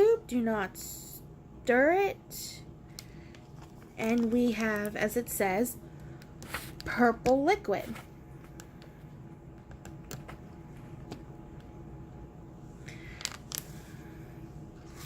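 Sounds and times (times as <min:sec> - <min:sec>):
low room hum: 0:00.0 - 0:15.0
plastic pieces clicking and tapping: 0:02.9 - 0:05.1.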